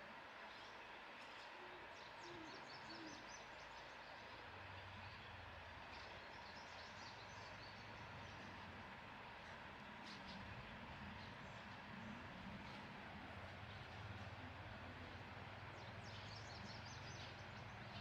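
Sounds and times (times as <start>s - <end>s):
steady outdoor hiss: 0.0s - 18.0s
soft low hoot-like calls: 1.4s - 3.5s.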